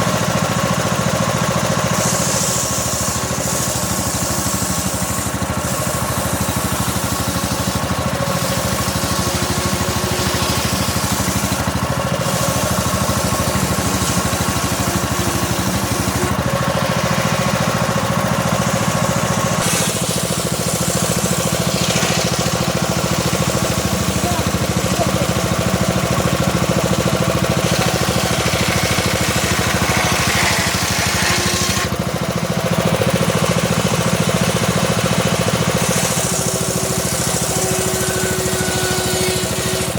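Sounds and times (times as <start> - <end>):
circular saw cutting log: 0.0 - 39.9
engine running steadily: 0.0 - 39.9.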